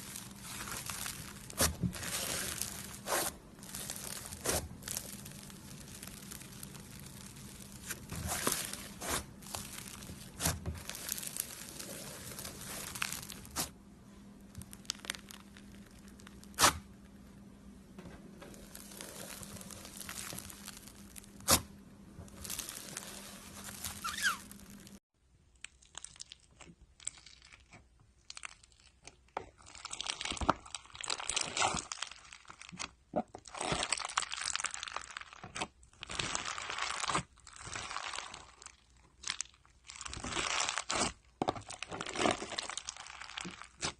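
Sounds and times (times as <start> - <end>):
slime crackling and tearing: 0.0 - 13.8, 14.5 - 16.9, 18.6 - 21.7, 22.3 - 25.0, 25.6 - 43.9
sharp slime pops: 16.5 - 16.8.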